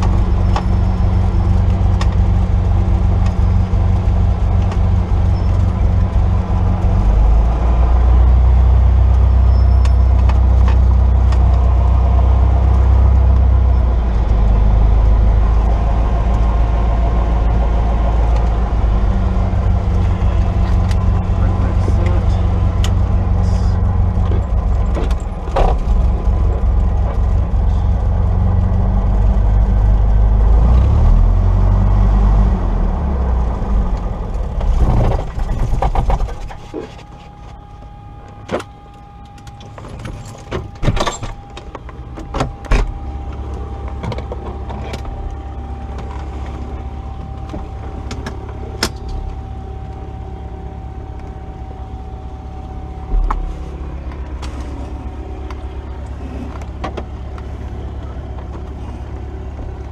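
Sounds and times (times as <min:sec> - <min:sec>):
steady whine: 0:00.0 - 0:59.9.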